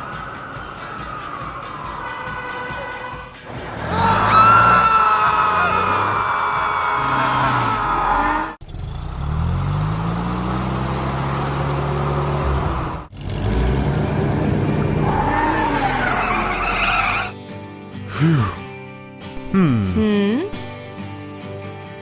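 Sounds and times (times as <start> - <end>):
cartoon vehicle engine revving: 7.0 - 17.3.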